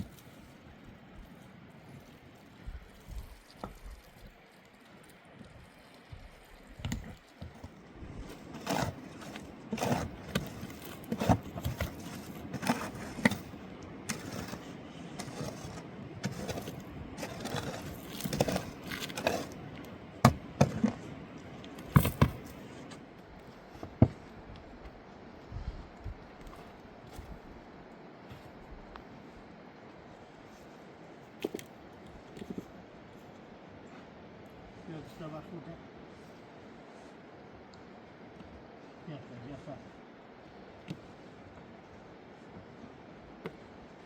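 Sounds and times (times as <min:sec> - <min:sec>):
scraping and knocking: 0:08.3 - 0:21.1, 0:21.7 - 0:23.0.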